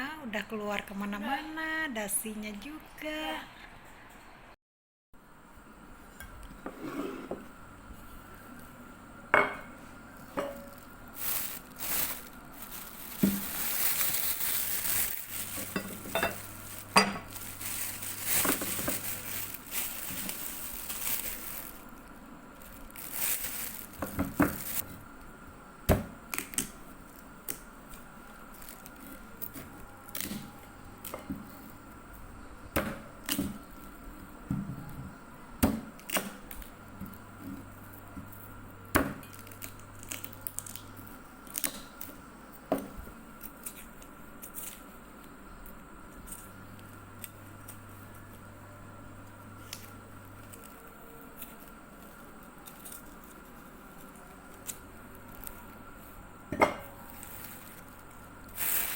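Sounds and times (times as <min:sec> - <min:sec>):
steady hissing noise: 0:05.2 - 0:34.5, 0:35.1 - 0:58.9
dishes and utensils clinking: 0:15.5 - 0:17.4.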